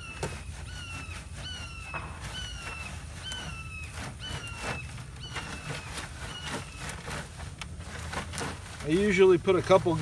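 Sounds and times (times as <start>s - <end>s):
bird calling: 0.0s - 7.3s
compost rasping through sifting screen: 0.0s - 10.0s.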